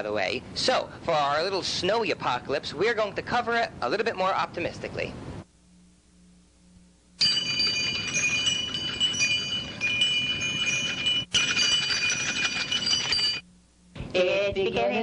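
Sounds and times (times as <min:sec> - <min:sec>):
bells and chimes tinkling: 0:07.2 - 0:13.5.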